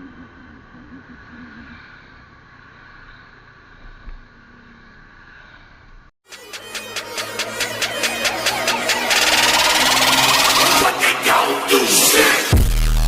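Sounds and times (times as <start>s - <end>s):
music with sharp beat: 6.2s - 13.0s.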